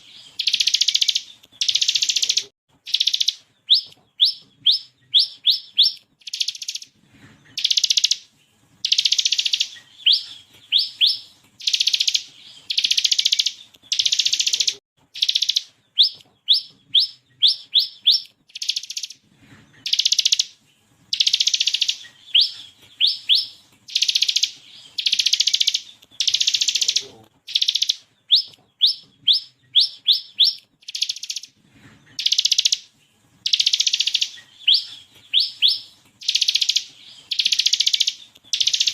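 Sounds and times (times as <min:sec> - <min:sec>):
bird whistled notes: 0:08.8 - 0:19.2, 0:21.2 - 0:31.5, 0:33.5 - 0:38.9.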